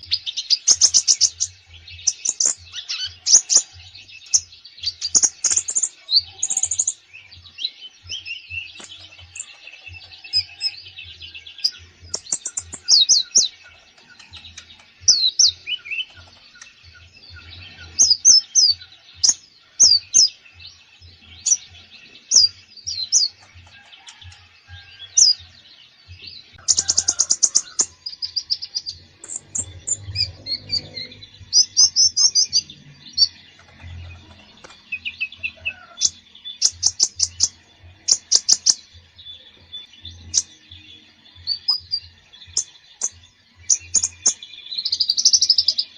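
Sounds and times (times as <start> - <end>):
songbird singing: 0.0 - 45.9
fast bird trill: 8.2 - 20.4, 26.6 - 38.8.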